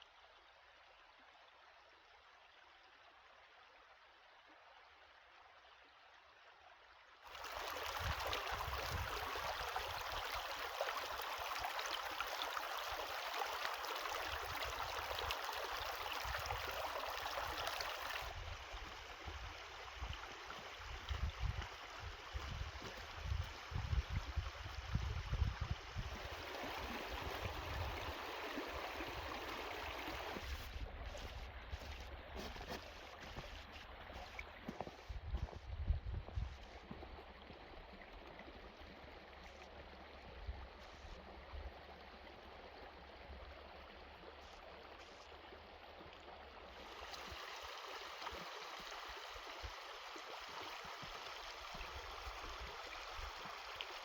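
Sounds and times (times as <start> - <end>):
stream water rushing: 7.3 - 25.4, 26.0 - 35.1, 46.6 - 54.0.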